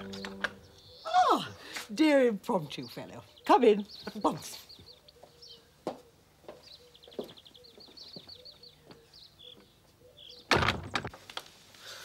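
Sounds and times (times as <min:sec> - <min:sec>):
songbird singing high trills: 0:00.0 - 0:01.8.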